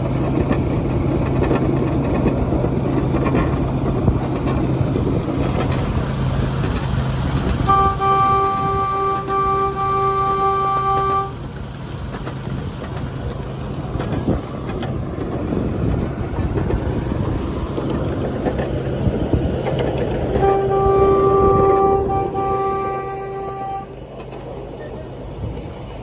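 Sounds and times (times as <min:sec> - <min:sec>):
miniature train humming: 0:00.0 - 0:26.0
wheels clicking over rail joints: 0:00.0 - 0:26.0
train horn: 0:07.6 - 0:11.5, 0:20.3 - 0:24.3.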